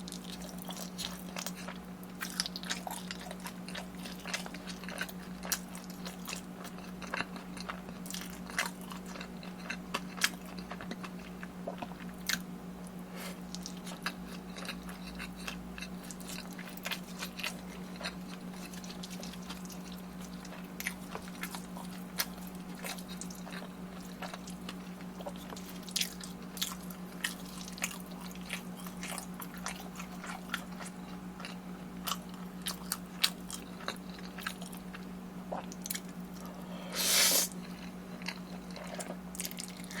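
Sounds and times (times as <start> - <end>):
chewing and crunching food: 0.0 - 40.0.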